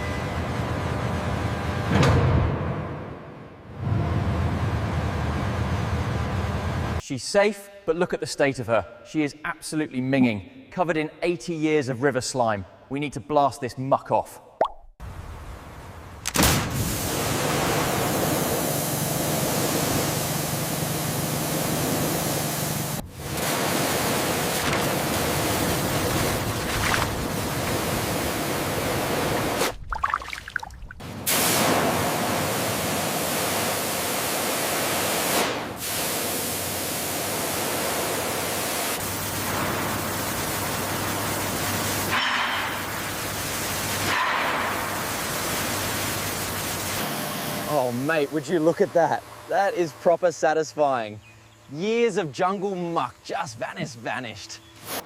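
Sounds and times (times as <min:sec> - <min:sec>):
pressure washer jet spraying: 0:16.7 - 0:29.7, 0:31.2 - 0:49.1.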